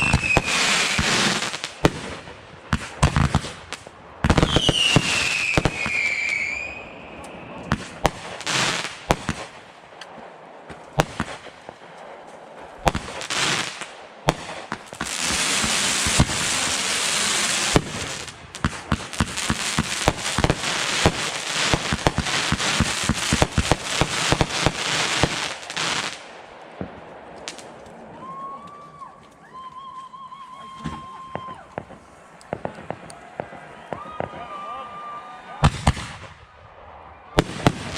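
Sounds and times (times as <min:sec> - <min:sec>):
firework bangs: 0:00.0 - 0:27.8, 0:30.8 - 0:34.5, 0:35.6 - 0:37.9
fireworks crackling: 0:00.0 - 0:37.9.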